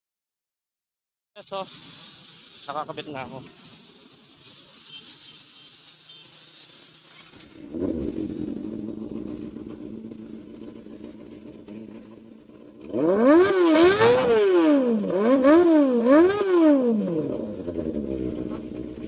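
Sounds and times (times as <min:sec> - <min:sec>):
motorcycle engine idling and revving: 0:07.2 - 0:19.0.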